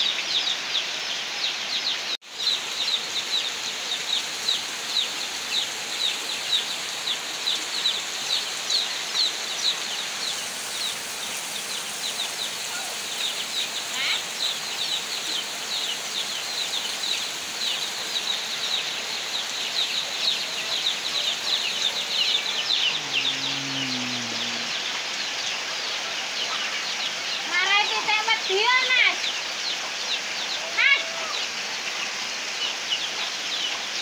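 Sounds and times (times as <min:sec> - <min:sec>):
heavy rain pouring on roof: 0:02.2 - 0:29.2, 0:30.3 - 0:34.0
low voice: 0:22.8 - 0:24.9.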